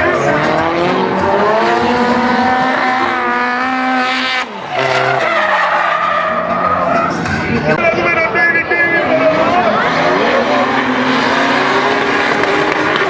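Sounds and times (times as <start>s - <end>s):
car engines at high revs: 0.0s - 7.8s, 9.1s - 13.0s
tyres squealing: 2.9s - 7.8s.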